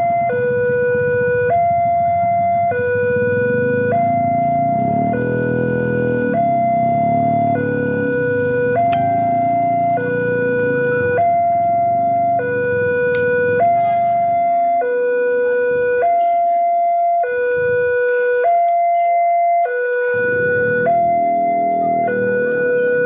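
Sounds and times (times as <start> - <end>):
level crossing two-tone alarm: 0.0 - 23.0
low engine rumble: 0.1 - 14.6, 19.8 - 23.0.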